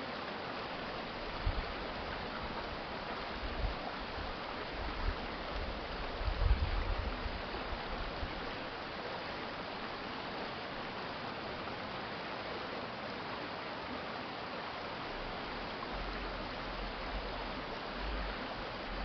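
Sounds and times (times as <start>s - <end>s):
stream flowing: 0.0s - 19.0s.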